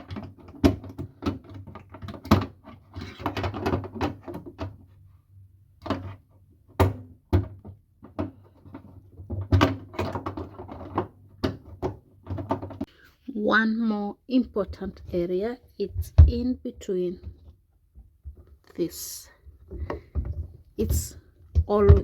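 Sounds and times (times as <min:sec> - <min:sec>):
plastic parts clicking and knocking: 0:00.0 - 0:05.0, 0:05.8 - 0:12.9, 0:19.5 - 0:22.0.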